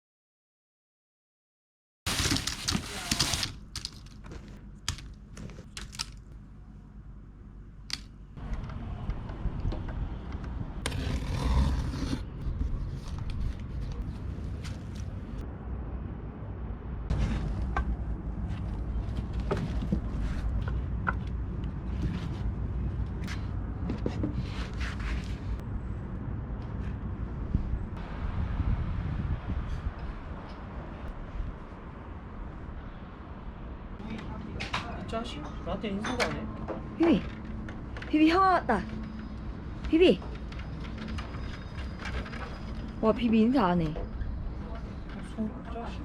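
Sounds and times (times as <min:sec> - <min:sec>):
low steady rumble: 0:03.5 - 0:23.8.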